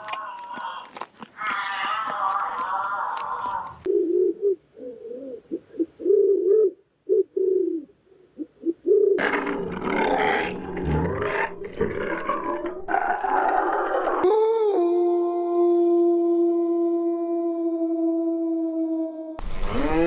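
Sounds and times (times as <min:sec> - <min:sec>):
animal calls: 0:00.0 - 0:07.8.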